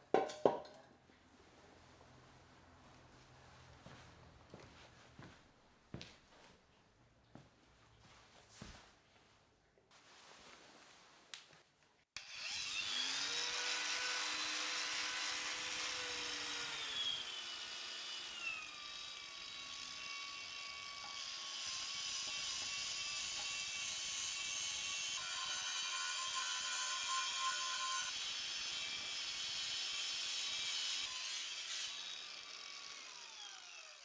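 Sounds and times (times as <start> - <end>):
power tool grinding: 12.2 - 34.0.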